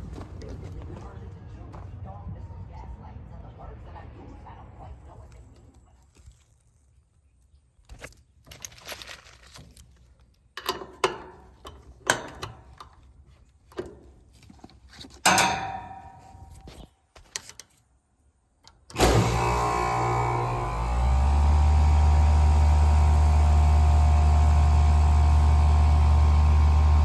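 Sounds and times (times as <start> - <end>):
tools knocking and clattering: 10.6 - 12.9, 15.0 - 17.5.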